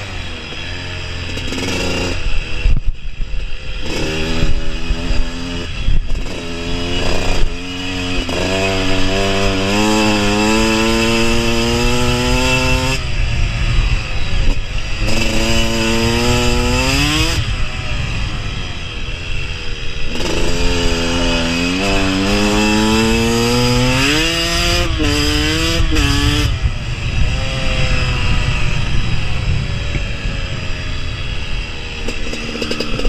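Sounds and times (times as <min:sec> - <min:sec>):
dirt bike engine accelerating: 0:00.0 - 0:33.0.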